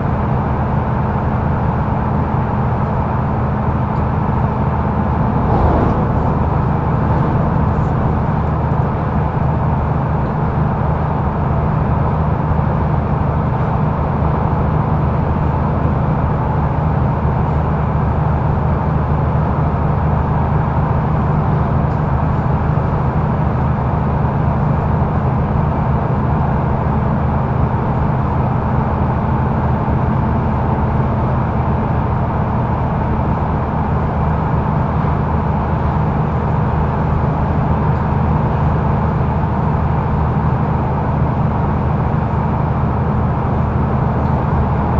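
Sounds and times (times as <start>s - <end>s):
bus engine drone: 0.0s - 44.9s
road and tyre noise: 5.1s - 10.2s.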